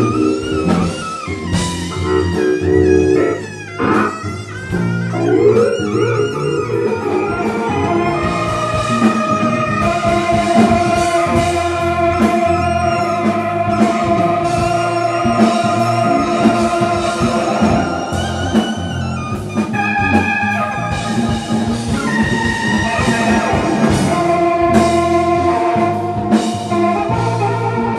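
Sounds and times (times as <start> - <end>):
fusion band playing: 0.0 - 27.9
long held lead note: 1.6 - 9.0.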